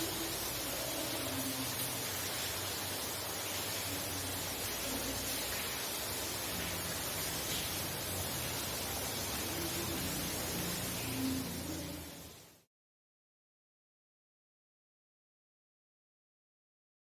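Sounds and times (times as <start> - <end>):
heavy rain hissing: 0.0 - 12.7.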